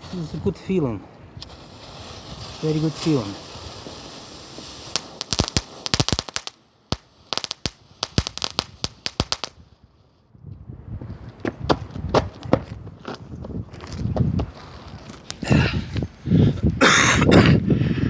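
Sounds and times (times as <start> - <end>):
firecrackers cracking: 1.4 - 9.9, 14.5 - 16.1.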